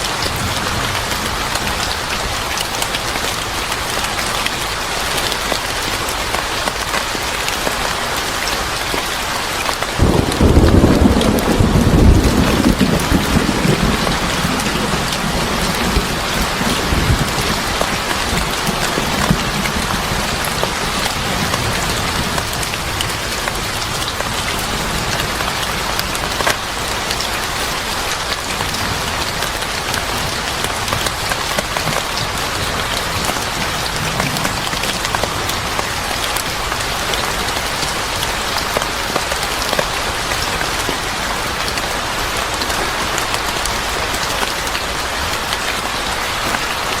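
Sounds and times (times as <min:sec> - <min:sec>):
steady rain: 0:00.0 - 0:47.0
low thunder rumble: 0:10.0 - 0:23.4.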